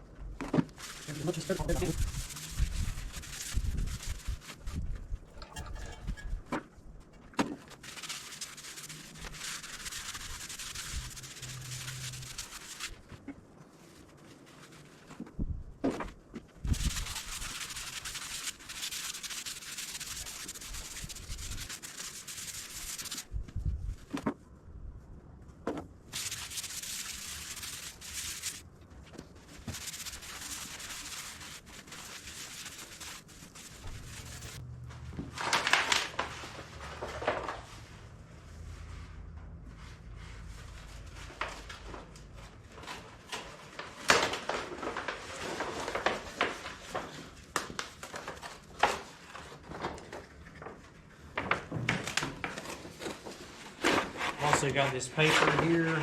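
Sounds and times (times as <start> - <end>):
hand sanding metal: 1.0 - 4.4, 5.3 - 6.4, 26.2 - 28.6, 29.7 - 34.6.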